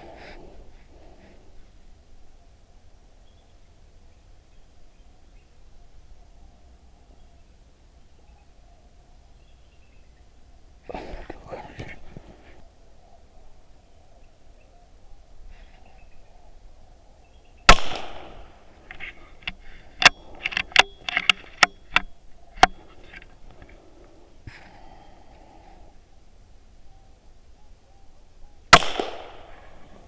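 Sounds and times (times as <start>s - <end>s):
sharp shot: 17.7s - 18.5s, 28.7s - 29.7s
sharp cracks: 17.7s - 23.8s, 28.7s - 30.0s.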